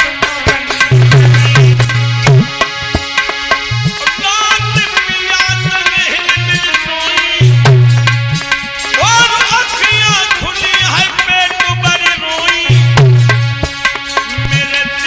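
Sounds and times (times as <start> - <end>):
hand drums: 0.0 - 15.0
melody instrument: 0.8 - 6.0.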